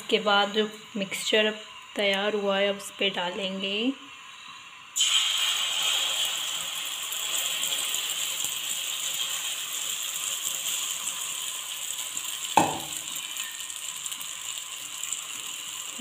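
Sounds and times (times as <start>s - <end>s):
batter sizzling in hot oil: 0.0s - 16.0s
sharp knock: 12.6s - 13.0s.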